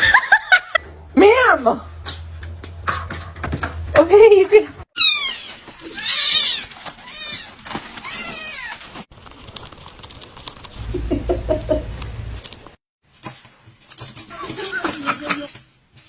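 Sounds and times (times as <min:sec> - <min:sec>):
low steady hum: 0:10.8 - 0:12.5.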